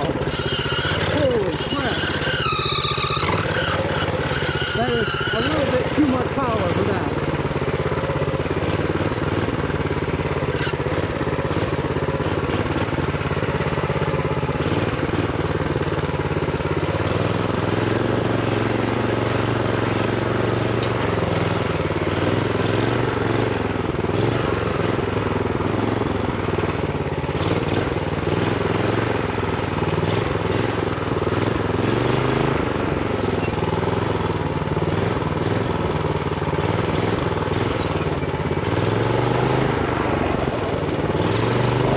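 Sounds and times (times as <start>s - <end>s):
minibike engine running: 0.0s - 41.9s
faint short squeaks: 10.4s - 10.8s, 26.8s - 27.2s, 33.2s - 33.8s, 37.8s - 38.5s.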